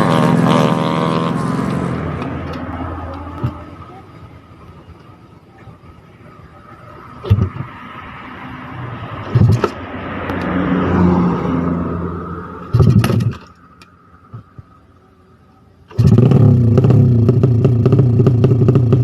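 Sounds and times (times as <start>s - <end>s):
motorcycle engines revving: 0.0s - 4.7s, 6.5s - 14.6s, 15.9s - 19.0s.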